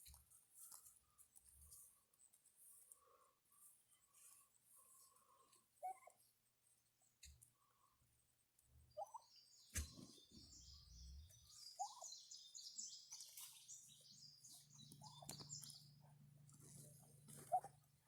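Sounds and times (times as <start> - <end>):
small birds twittering: 8.8 - 17.7
turkeys calling: 9.0 - 16.6.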